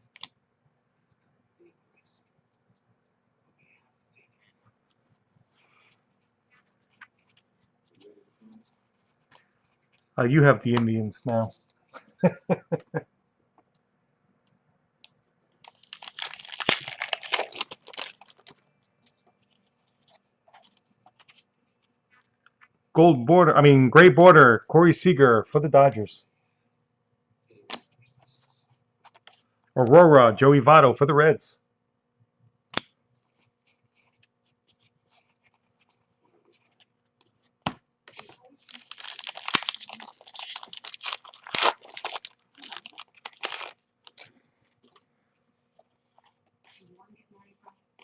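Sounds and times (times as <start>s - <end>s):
wrapper tearing and crinkling: 15.6s - 18.6s, 38.1s - 44.3s.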